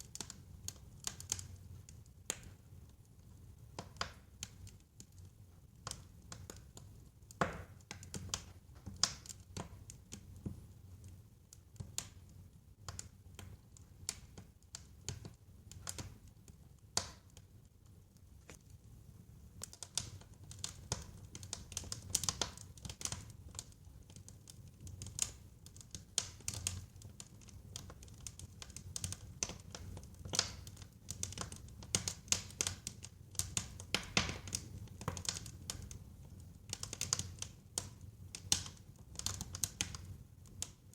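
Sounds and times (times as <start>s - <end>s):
fire crackling and snapping: 0.0s - 40.9s
low rumble of burning: 0.0s - 40.9s.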